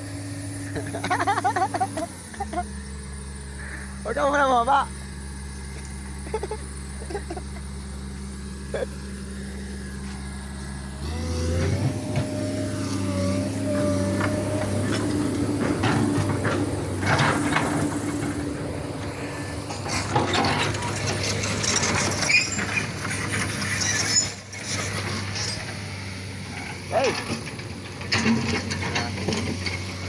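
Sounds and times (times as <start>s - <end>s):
diesel engine idling and revving: 0.0s - 30.0s
knocks and clatters: 14.1s - 18.8s, 19.7s - 23.7s.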